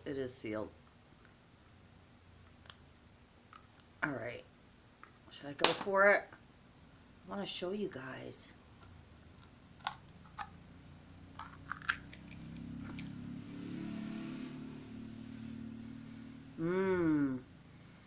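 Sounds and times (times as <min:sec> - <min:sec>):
jar seal clicking and crackling: 0:09.4 - 0:10.6, 0:11.4 - 0:13.1
person humming mm: 0:16.6 - 0:17.5.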